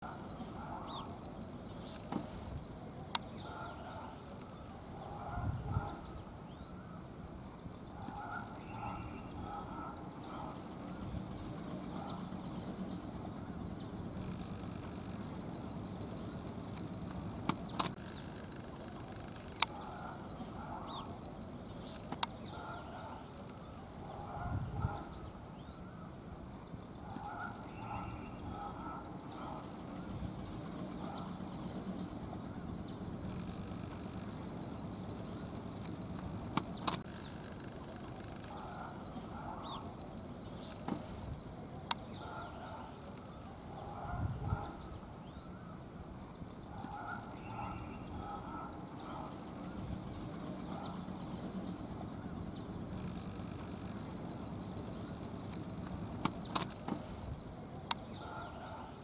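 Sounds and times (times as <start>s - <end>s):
high-pitched insect trill: 0.0s - 59.0s
sharp clicks: 16.7s - 19.8s, 21.9s - 22.4s, 35.8s - 38.5s, 55.5s - 57.2s.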